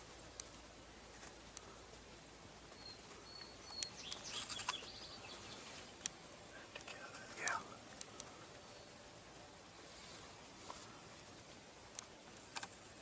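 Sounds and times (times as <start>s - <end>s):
small birds chirping: 0.0s - 13.0s
sharp ticks: 6.0s - 8.3s.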